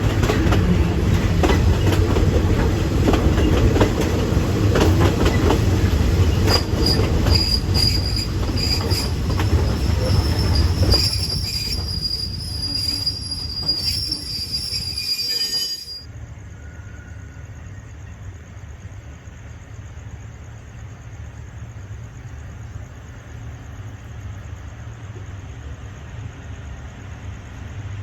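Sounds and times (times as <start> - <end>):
steel wheels squealing on rail: 0.0 - 18.1
train rolling rumble: 0.0 - 28.0.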